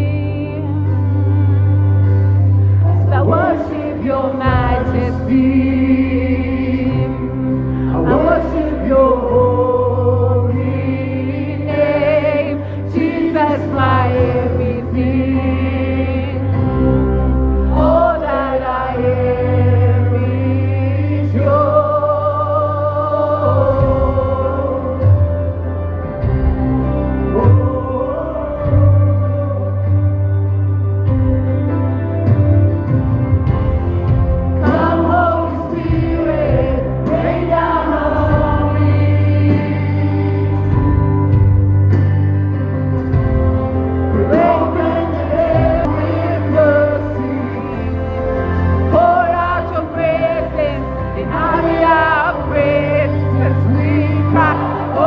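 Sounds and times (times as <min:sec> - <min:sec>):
choir singing gospel: 0:00.0 - 0:31.3, 0:32.8 - 0:55.0
low bass: 0:00.0 - 0:55.0
sustained keyboard chords: 0:00.0 - 0:55.0.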